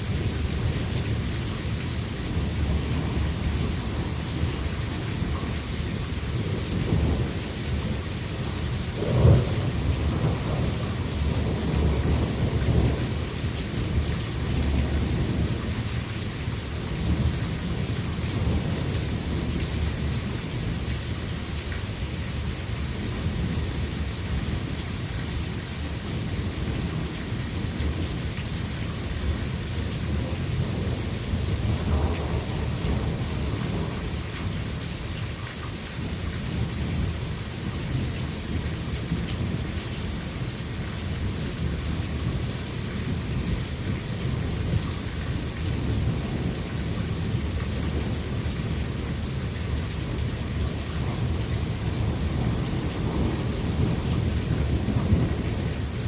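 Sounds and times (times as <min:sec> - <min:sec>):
heavy rain: 0:00.0 - 0:56.0
thunder rumbling: 0:06.3 - 0:15.6, 0:29.2 - 0:34.2, 0:50.4 - 0:56.0.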